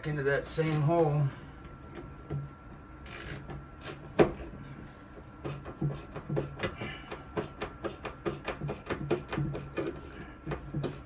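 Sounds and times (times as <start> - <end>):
screwdriver knock: 5.4 - 11.0.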